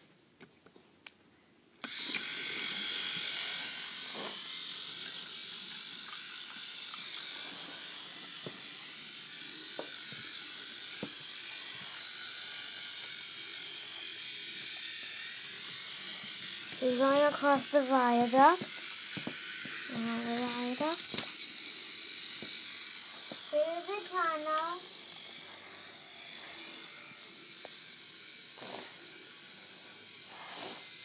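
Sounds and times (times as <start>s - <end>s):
toy train motor whirring: 1.8s - 31.0s.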